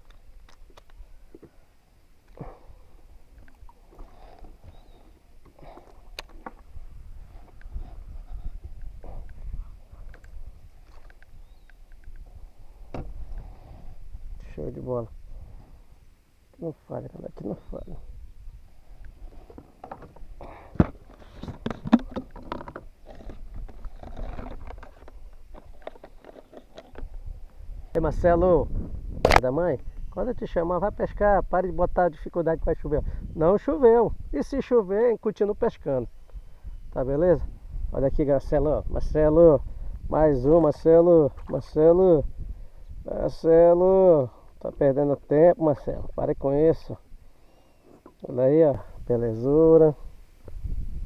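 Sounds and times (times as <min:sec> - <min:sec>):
knocks and clicks on kayak: 0:12.9 - 0:13.2, 0:19.5 - 0:27.1.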